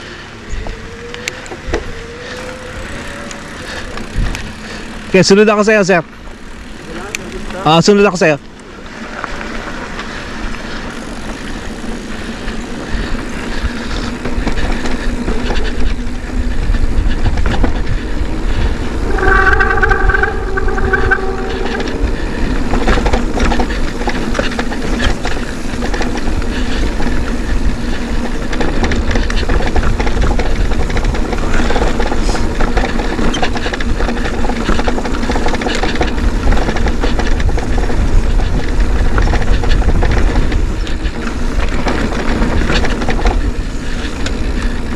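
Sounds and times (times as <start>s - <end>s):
wind buffeting microphone: 0.0s - 5.2s, 10.9s - 44.9s
steady squeal: 0.0s - 5.3s, 15.0s - 25.5s
bike rattling over ground: 0.0s - 44.9s
bike tyre noise: 0.0s - 44.9s.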